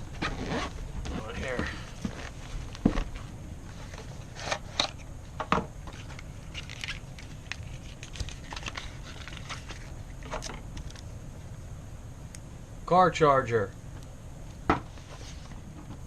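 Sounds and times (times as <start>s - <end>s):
packaging crinkling: 5.9s - 10.0s.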